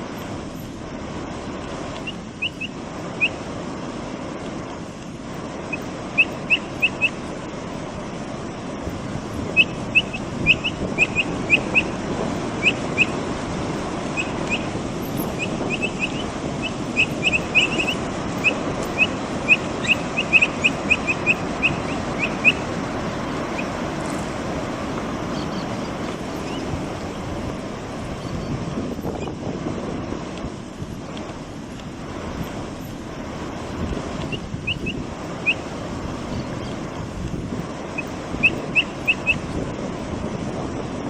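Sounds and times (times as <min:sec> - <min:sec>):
steady rushing background noise: 0:00.0 - 0:41.0
capybara piping: 0:09.4 - 0:12.0, 0:14.1 - 0:22.7.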